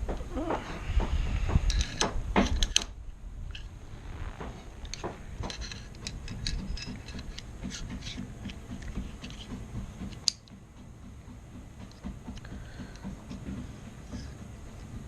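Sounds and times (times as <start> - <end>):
rifle parts clicking: 4.8 - 9.4.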